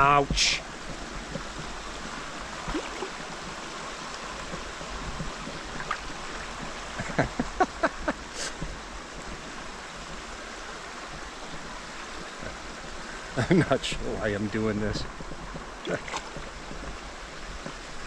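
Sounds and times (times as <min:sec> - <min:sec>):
river water rushing over rocks: 0:00.0 - 0:18.0
legs wading splashes: 0:00.6 - 0:13.1.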